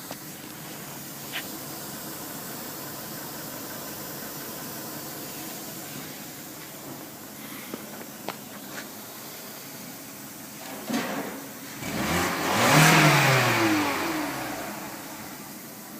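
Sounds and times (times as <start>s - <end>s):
thump: 10.6s - 11.5s
car engine revving: 11.7s - 15.8s.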